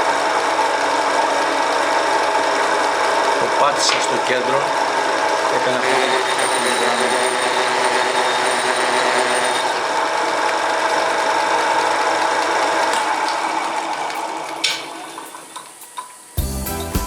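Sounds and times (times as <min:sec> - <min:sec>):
lathe motor running: 0:00.0 - 0:16.5
music: 0:16.4 - 0:17.0.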